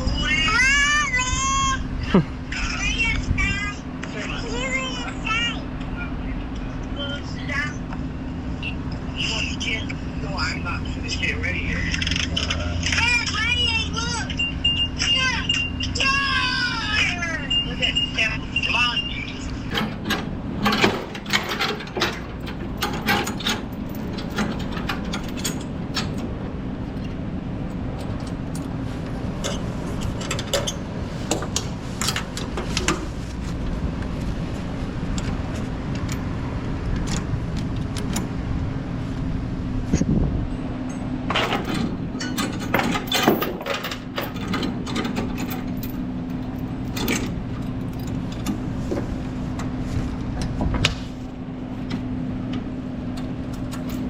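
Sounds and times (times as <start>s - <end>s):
steel chains clinking: 17.5s - 27.2s, 27.8s - 33.5s, 40.9s - 48.8s
chain binder clanking: 19.6s - 34.2s, 40.8s - 50.3s, 51.6s - 54.0s.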